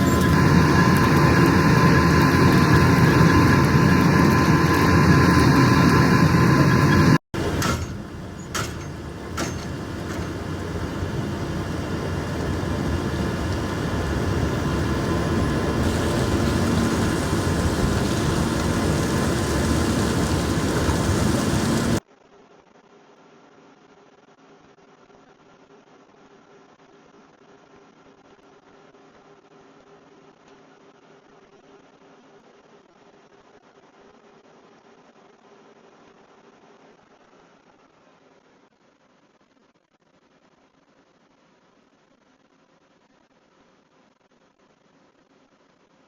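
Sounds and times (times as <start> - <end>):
heavy truck engine running: 0.0 - 22.0
sharp knocks: 7.4 - 10.7.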